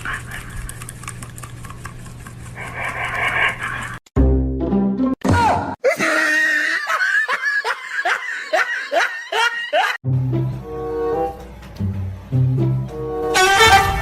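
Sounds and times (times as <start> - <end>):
background music with steady notes: 10.0 - 14.0.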